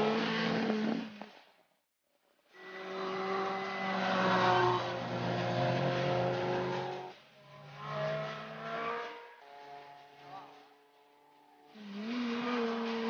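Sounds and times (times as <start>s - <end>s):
rally car engine at high revs: 0.0s - 1.2s, 2.8s - 10.6s, 11.7s - 13.0s.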